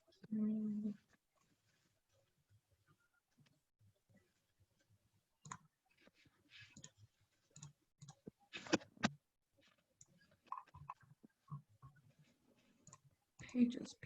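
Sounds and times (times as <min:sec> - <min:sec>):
mouse and keyboard clicks: 0:05.4 - 0:05.7.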